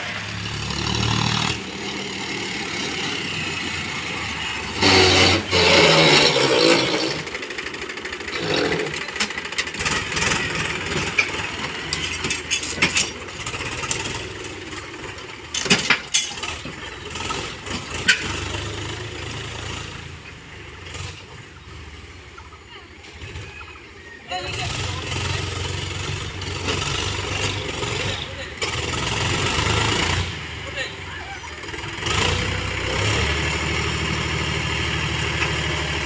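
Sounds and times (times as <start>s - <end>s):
diesel machinery engine running: 0.0s - 36.0s.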